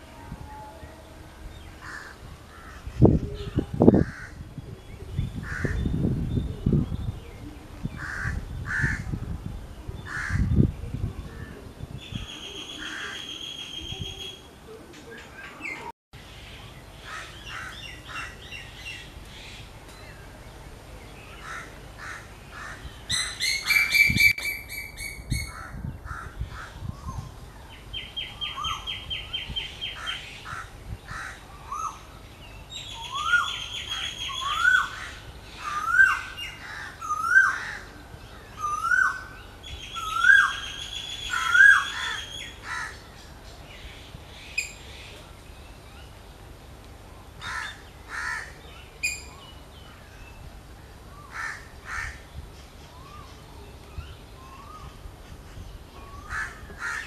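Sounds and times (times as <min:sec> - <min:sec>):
bird trill: 0:23.1 - 0:25.6, 0:38.6 - 0:43.0
bird chirps: 0:48.8 - 0:49.6.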